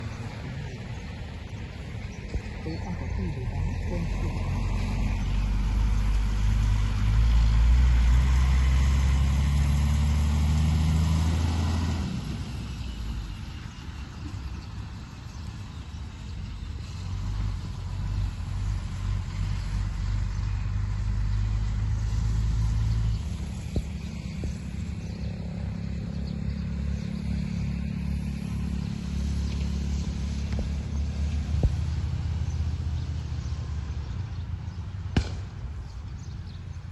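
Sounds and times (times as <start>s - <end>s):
vehicle engine humming: 0.0s - 36.9s.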